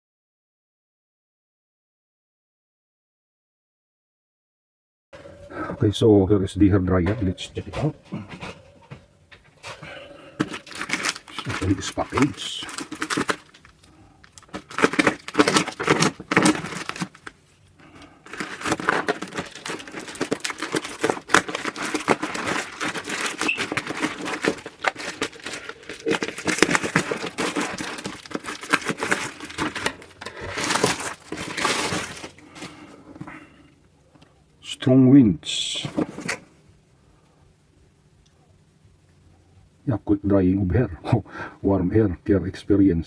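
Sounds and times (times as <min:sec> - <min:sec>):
packaging crinkling and tearing: 0:09.6 - 0:33.0.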